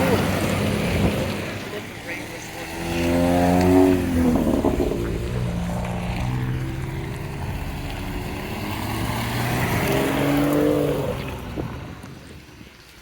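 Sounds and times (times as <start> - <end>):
car engine accelerating past: 2.4 - 11.9.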